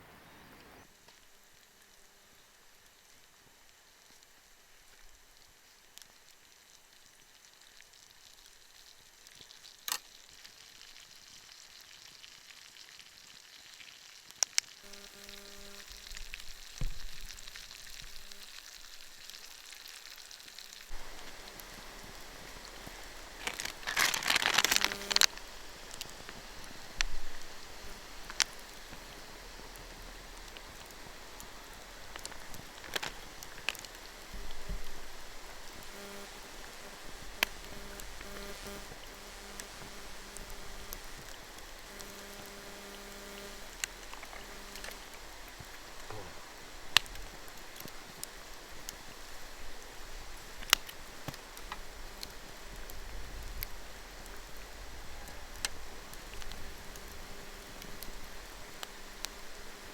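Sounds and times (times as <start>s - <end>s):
food sizzling in a pan: 0.8s - 59.9s
sharp clicks: 21.0s - 25.4s.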